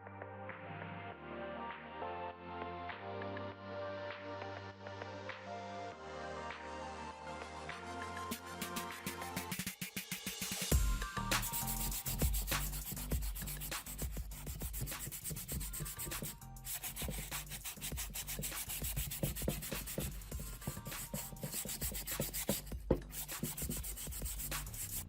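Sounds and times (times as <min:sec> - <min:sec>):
faint background music: 0:10.5 - 0:25.0
hand sanding rusty iron: 0:11.4 - 0:25.0.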